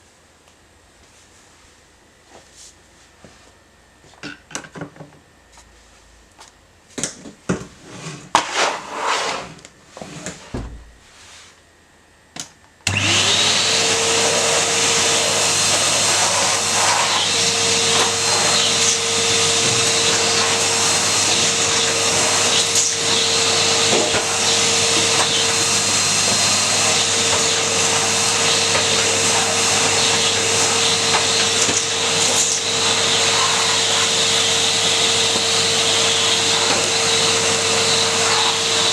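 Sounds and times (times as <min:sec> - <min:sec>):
vacuum cleaner running: 0:12.8 - 0:38.9.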